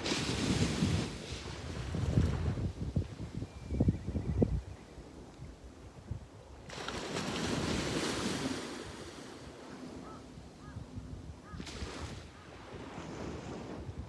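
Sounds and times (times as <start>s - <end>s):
wave breaking and hissing up shore: 0.0s - 2.3s, 6.7s - 9.8s
wind rumbling on microphone: 0.0s - 14.0s.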